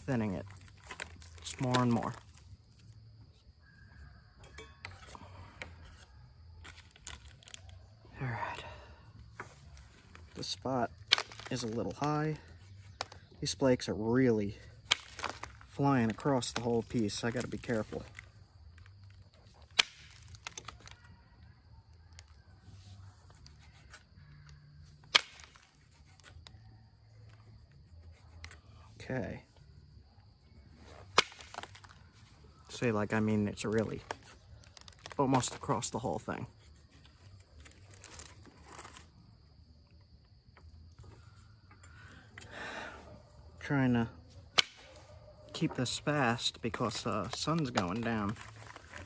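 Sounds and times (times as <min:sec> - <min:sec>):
sharp cracks of stone strikes: 0:25.1 - 0:25.6, 0:31.1 - 0:31.7.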